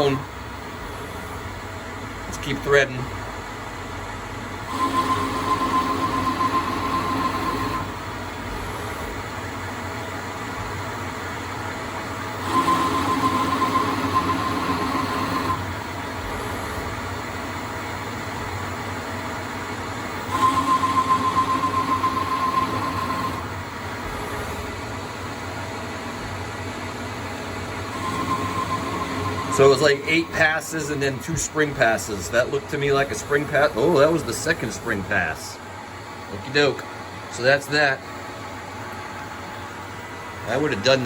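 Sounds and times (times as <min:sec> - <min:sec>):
lathe spindle hum: 0:00.0 - 0:41.0
high whine of threading pass: 0:20.0 - 0:24.9, 0:27.6 - 0:35.4.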